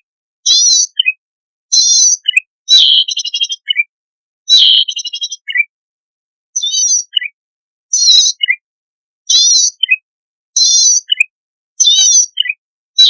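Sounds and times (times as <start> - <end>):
bird song buzzy phrases: 0.0 - 5.7, 6.6 - 8.6, 9.2 - 13.0
rapid rattling bird trill: 0.5 - 3.8, 4.5 - 5.6.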